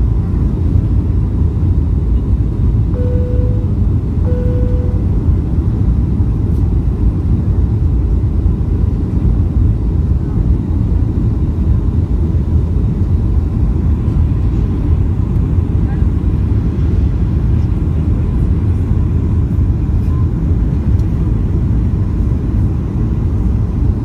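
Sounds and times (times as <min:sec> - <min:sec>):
aircraft cabin engine roar: 0:00.0 - 0:24.0
single-pitch chime tones: 0:03.0 - 0:05.1.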